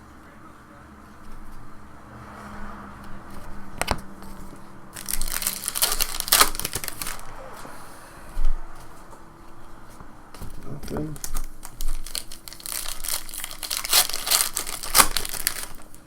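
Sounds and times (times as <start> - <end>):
wrapper crackling: 4.9 - 7.3, 10.8 - 16.0
card pack wrapper crinkling: 5.0 - 7.3, 10.8 - 16.0.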